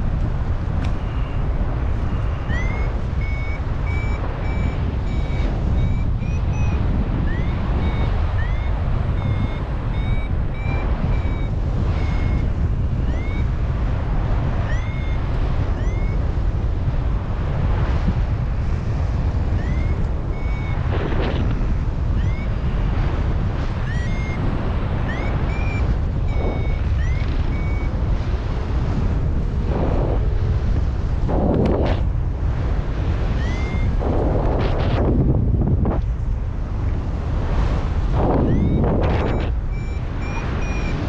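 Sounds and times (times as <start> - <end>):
wind buffeting microphone: 0.0 - 41.0
variometer beeping in chirps: 1.0 - 16.5, 19.0 - 28.9, 33.2 - 35.4, 38.2 - 41.0.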